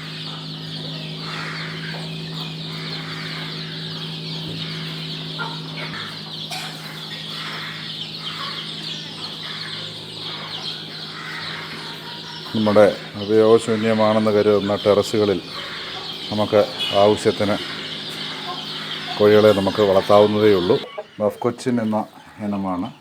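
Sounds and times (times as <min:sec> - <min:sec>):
chickens clucking: 0:00.0 - 0:23.0
steady low hum: 0:00.0 - 0:23.0.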